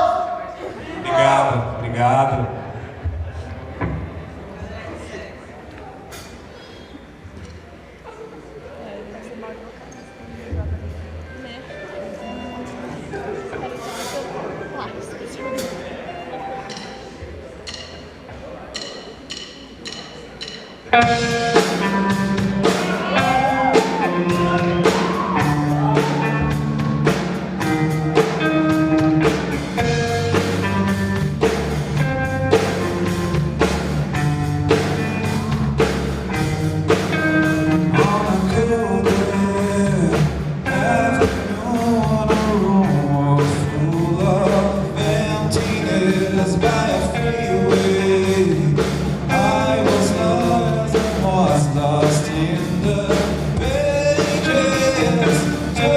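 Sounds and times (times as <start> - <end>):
live rock band playing: 15.3 - 55.9
drum hits: 18.7 - 55.9
person singing: 21.0 - 31.0, 36.4 - 55.9.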